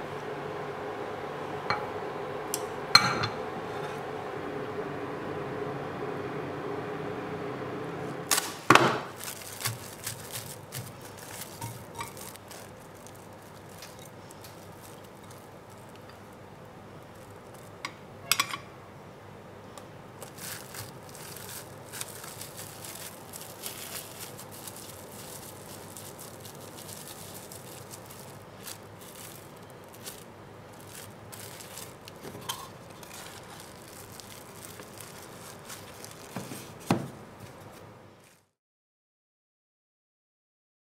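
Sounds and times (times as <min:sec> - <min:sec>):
utensils and dishes clinking: 0:03.0 - 0:03.4, 0:09.6 - 0:16.2, 0:30.9 - 0:33.9.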